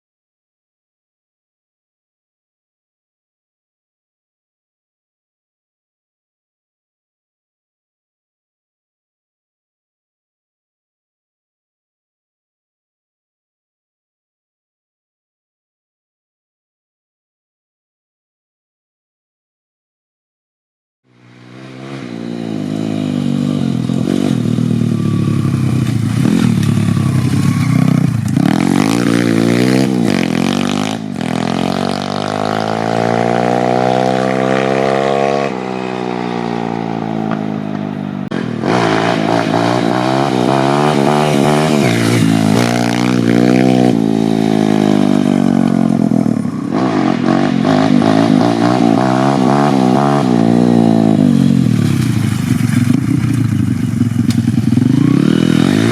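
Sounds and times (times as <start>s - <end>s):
motorbike engine revving: 21.3s - 55.9s.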